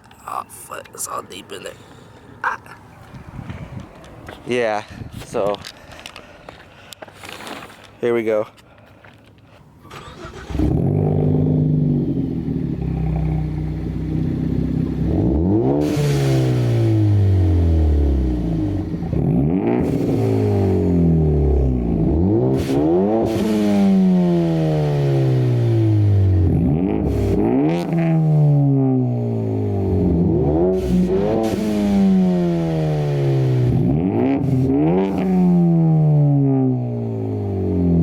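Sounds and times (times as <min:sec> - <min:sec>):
car engine idling and revving: 0:09.8 - 0:38.0.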